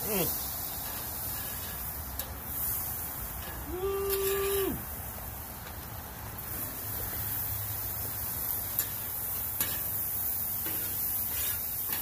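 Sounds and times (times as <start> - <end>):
vegetables sizzling on a griddle: 0.0 - 12.0
metal spatula clicking on griddle: 8.7 - 10.0, 10.6 - 12.0.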